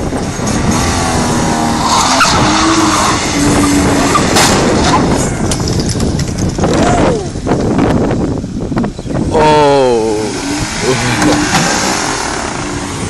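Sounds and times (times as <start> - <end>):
tyres skidding on pavement: 0.0 - 7.0, 10.4 - 13.0
car engine at high revs: 0.0 - 7.3, 9.3 - 13.0.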